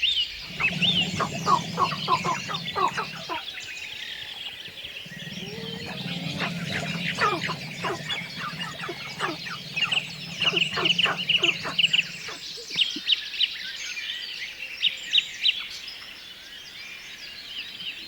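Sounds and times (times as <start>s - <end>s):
birds chirping and calling: 0.4s - 3.4s, 4.9s - 12.7s.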